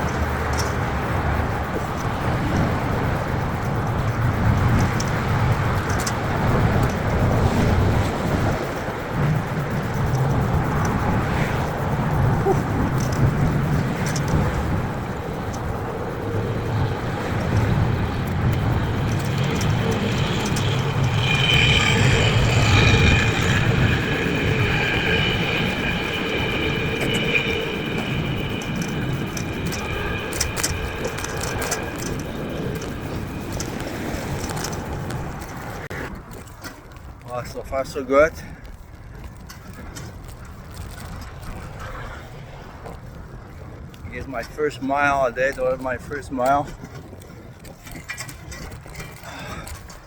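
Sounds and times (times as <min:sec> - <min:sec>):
high ringing tone: 0:00.0 - 0:35.9
faint clicks: 0:00.0 - 0:37.3
faint ticks: 0:00.0 - 0:37.3
street traffic noise: 0:00.0 - 0:50.0
wind rushing over microphone: 0:00.0 - 0:50.0.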